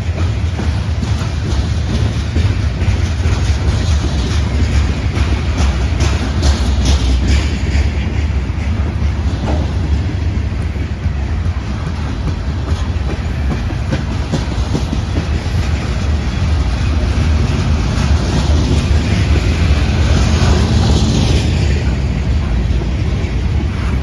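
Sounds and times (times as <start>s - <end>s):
train low rumble: 0.0s - 24.0s
train wheels clacking: 0.0s - 24.0s.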